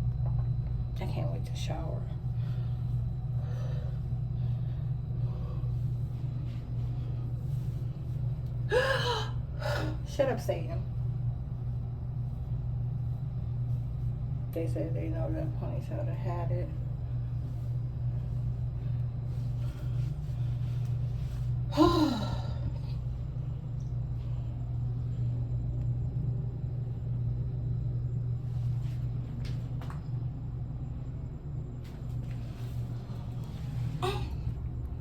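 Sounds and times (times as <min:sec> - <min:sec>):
steady low hum: 0:00.0 - 0:35.0
woman sighing: 0:08.7 - 0:10.0, 0:21.7 - 0:22.7, 0:34.0 - 0:34.5.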